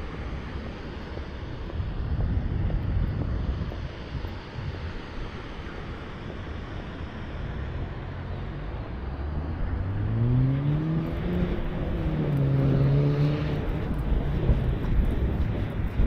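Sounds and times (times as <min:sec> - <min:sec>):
wind rumble on microphone: 0:00.0 - 0:16.0
vehicle engine accelerating: 0:07.4 - 0:16.0.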